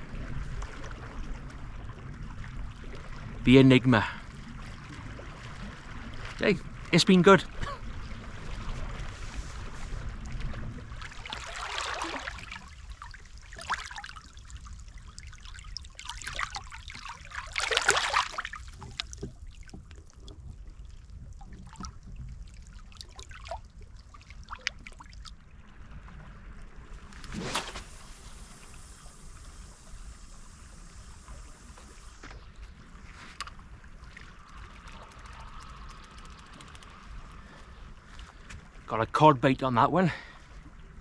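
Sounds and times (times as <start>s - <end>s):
wind rumble on microphone: 0.0s - 3.5s, 4.2s - 11.2s
water lapping at shore: 0.0s - 38.9s.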